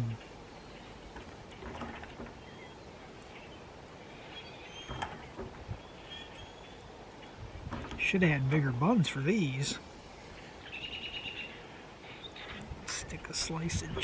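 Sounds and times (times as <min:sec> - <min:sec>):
faint bird chirps: 0:00.0 - 0:07.7, 0:10.0 - 0:13.2.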